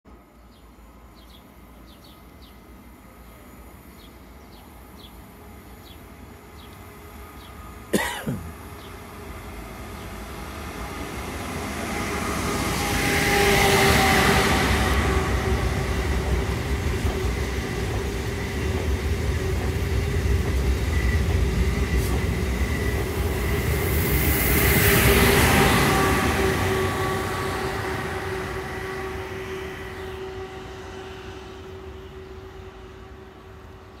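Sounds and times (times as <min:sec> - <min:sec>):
high-speed train passing: 0:00.1 - 0:34.0.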